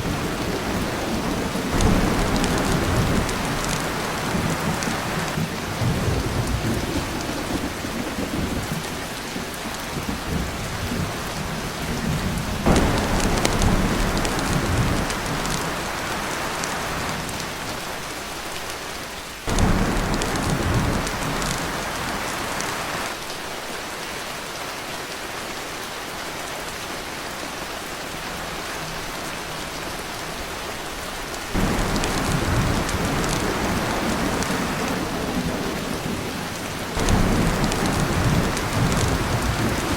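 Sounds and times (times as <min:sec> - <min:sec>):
thunder rumbling: 0:00.0 - 0:17.7, 0:19.5 - 0:23.2, 0:31.6 - 0:39.9
heavy rain on a tin roof: 0:00.0 - 0:39.9.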